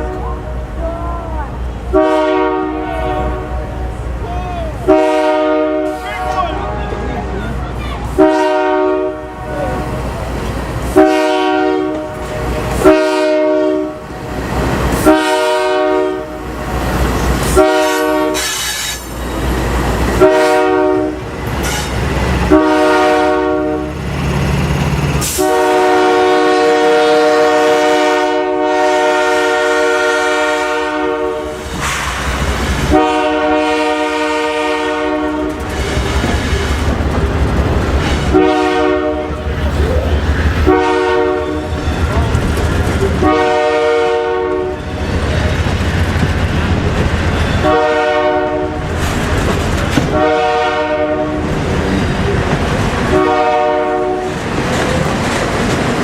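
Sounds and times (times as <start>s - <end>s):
low rumble of train: 0.0s - 56.0s
locomotive air horn blasts: 1.9s - 3.8s, 4.8s - 6.6s, 8.1s - 9.9s, 10.9s - 14.0s, 14.9s - 16.4s, 17.4s - 19.1s, 20.1s - 24.0s, 25.2s - 32.2s, 32.8s - 36.3s, 38.2s - 39.4s, 40.6s - 42.0s, 43.2s - 44.9s, 47.6s - 48.9s, 50.0s - 51.6s, 53.1s - 54.3s.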